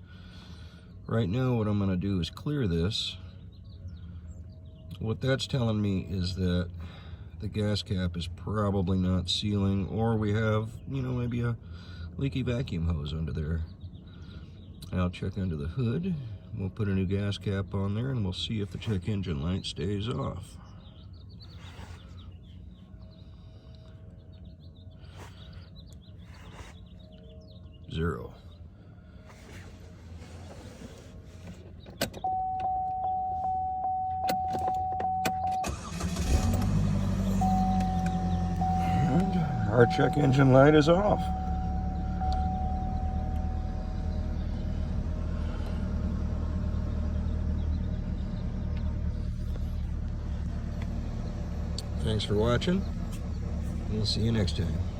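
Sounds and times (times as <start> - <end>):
small birds chirping faintly: 0.0 - 34.0
vehicle engine idling: 0.0 - 54.9
steady low hum: 18.1 - 54.9
faint steady tone: 32.2 - 36.3, 37.3 - 45.1.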